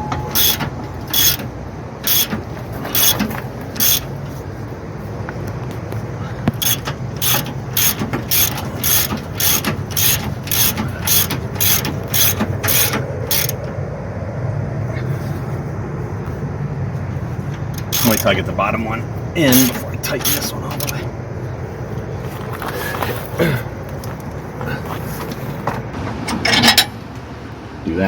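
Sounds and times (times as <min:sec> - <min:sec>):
ratchet wrench clicking: 0:00.2 - 0:04.1, 0:06.5 - 0:13.6, 0:17.7 - 0:18.3, 0:20.2 - 0:21.0.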